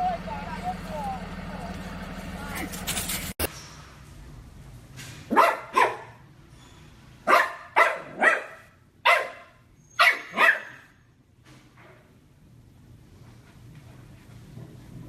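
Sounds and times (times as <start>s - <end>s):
dog barking: 5.3s - 6.2s, 7.2s - 10.9s.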